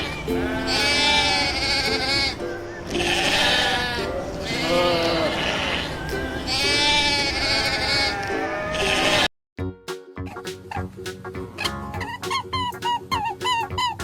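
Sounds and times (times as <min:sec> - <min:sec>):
sheep or goats bleating: 0:00.0 - 0:09.3.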